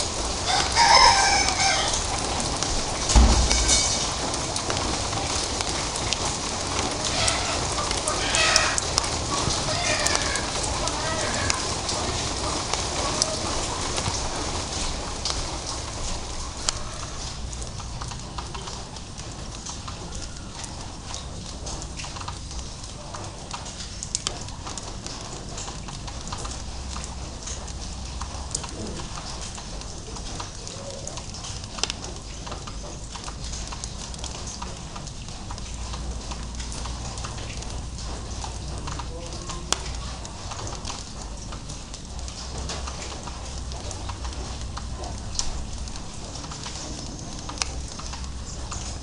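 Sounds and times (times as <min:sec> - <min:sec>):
raindrops tapping on hard surfaces: 0:00.0 - 0:49.0
steady hiss: 0:01.5 - 0:07.8
low rumble: 0:03.1 - 0:04.9.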